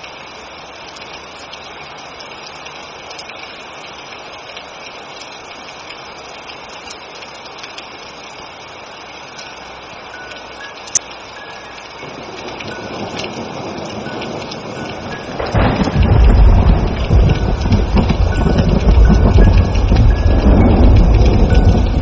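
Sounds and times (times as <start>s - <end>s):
steady rain: 0.0s - 22.0s
thunder rumbling: 12.0s - 22.0s.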